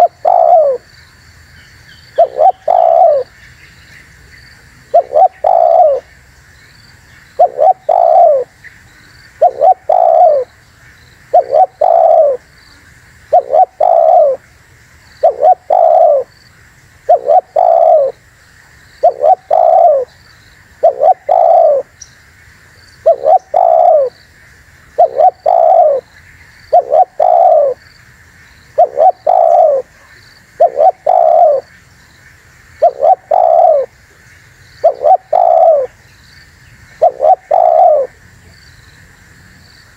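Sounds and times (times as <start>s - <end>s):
dove cooing: 0.0s - 0.9s, 2.2s - 3.3s, 4.8s - 6.1s, 7.4s - 8.6s, 9.4s - 10.5s, 11.3s - 12.5s, 13.3s - 14.4s, 15.2s - 16.3s, 17.1s - 18.2s, 19.0s - 20.1s, 20.8s - 22.0s, 23.0s - 24.2s, 25.0s - 26.1s, 26.7s - 27.8s, 28.8s - 31.7s, 32.8s - 33.9s, 34.8s - 36.0s, 37.0s - 38.2s.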